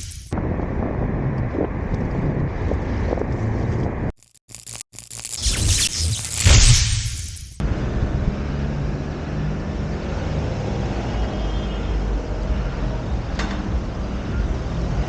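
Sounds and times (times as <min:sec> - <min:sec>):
traffic road noise rumble: 0:00.0 - 0:04.1, 0:07.6 - 0:15.0.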